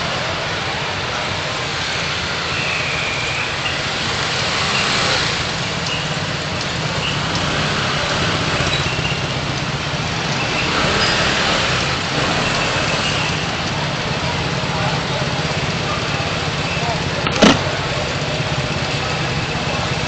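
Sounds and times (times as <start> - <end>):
road and traffic noise: 0.0 - 20.0
car engine running: 5.4 - 20.0.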